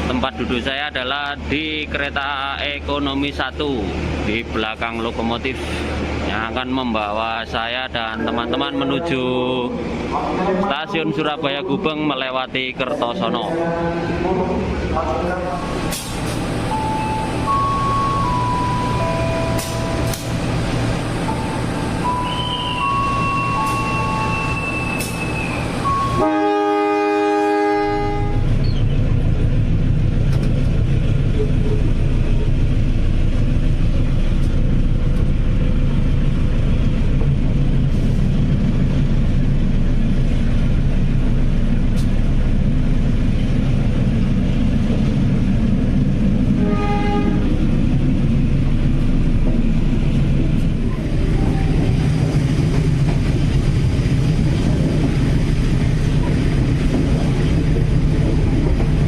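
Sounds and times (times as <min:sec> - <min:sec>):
train rumbling: 0:00.0 - 0:59.0
diesel locomotive horn: 0:22.0 - 0:28.6, 0:46.6 - 0:47.6, 0:51.2 - 0:52.0.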